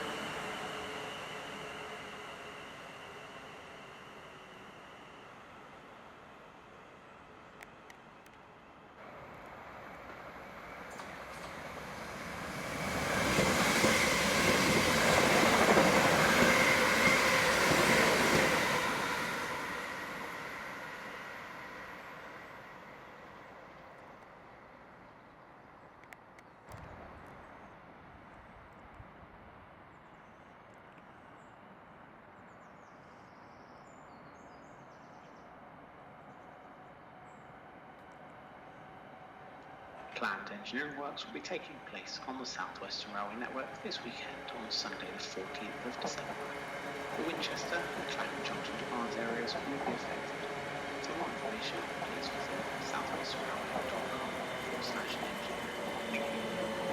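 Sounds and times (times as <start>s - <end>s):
train wheels rumbling on rails: 9.0s - 20.5s, 40.0s - 56.9s.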